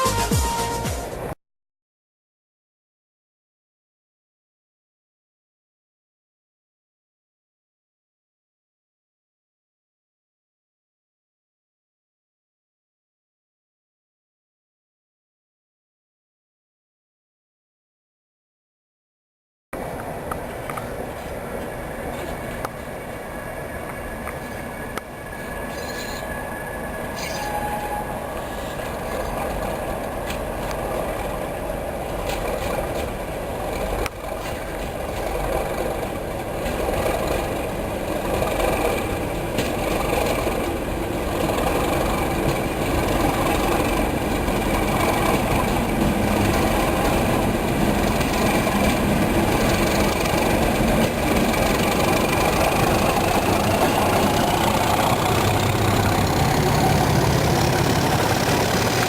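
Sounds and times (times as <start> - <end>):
locomotive engines idling: 19.8 - 59.0
rising whine: 52.4 - 59.0.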